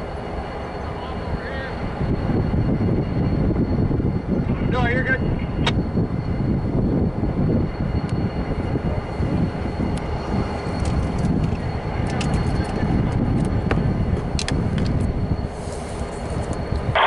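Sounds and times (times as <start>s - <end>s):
diesel locomotive engine rumbling: 0.0s - 17.0s.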